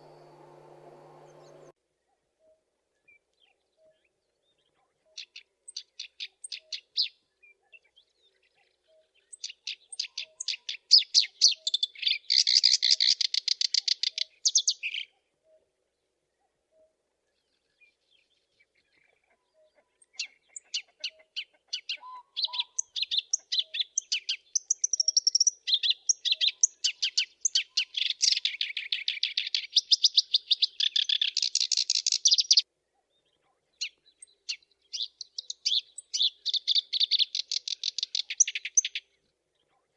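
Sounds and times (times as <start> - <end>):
warbler chattering song: 0.0 - 1.7, 9.1 - 15.1, 20.0 - 32.6, 33.8 - 39.1.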